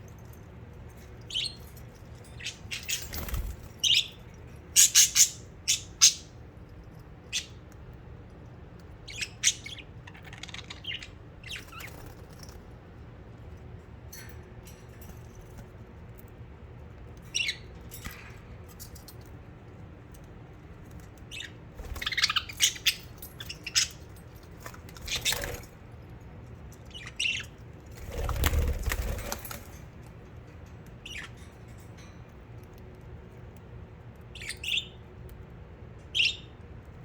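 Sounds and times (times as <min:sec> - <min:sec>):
budgerigars chirping: 0:02.3 - 0:04.2, 0:04.8 - 0:06.3, 0:09.1 - 0:12.0, 0:21.2 - 0:24.1, 0:26.9 - 0:27.6, 0:31.0 - 0:31.4, 0:34.4 - 0:35.0
wing flapping: 0:28.0 - 0:29.8.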